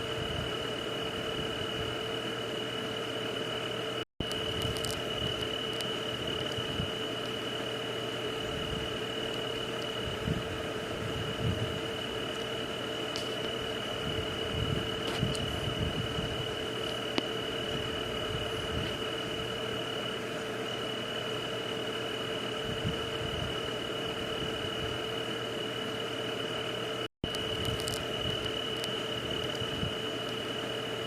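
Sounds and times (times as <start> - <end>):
low steady hum: 0.0 - 31.0
steady high drone: 0.0 - 31.0.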